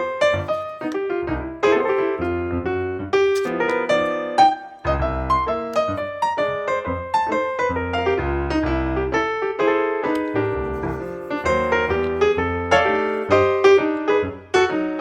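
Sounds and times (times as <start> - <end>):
background piano music: 3.6 - 9.0.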